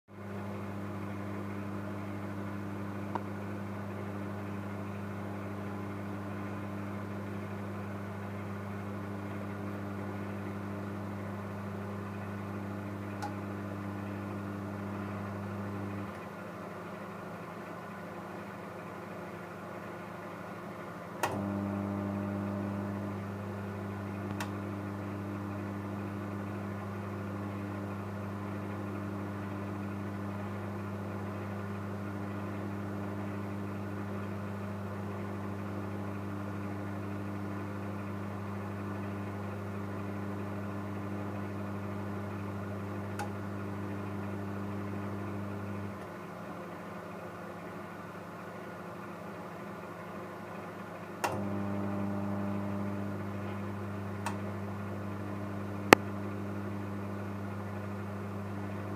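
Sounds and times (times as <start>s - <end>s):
microwave hum: 0.1s - 58.9s
microwave fan whir: 0.2s - 58.9s
microwave click: 12.9s - 13.8s, 21.2s - 23.0s, 24.2s - 24.8s, 43.0s - 43.9s, 51.2s - 52.9s, 53.5s - 54.6s.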